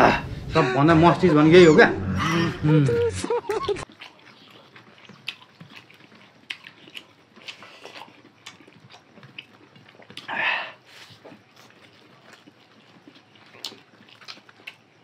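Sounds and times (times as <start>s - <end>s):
chewing: 3.8s - 15.0s.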